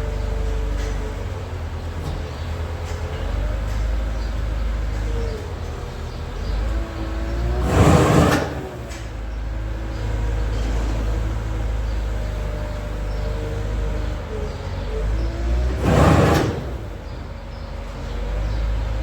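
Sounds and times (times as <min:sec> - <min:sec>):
farm machinery droning: 0:00.0 - 0:19.0
loud rushing burst: 0:07.5 - 0:08.9, 0:15.7 - 0:17.2.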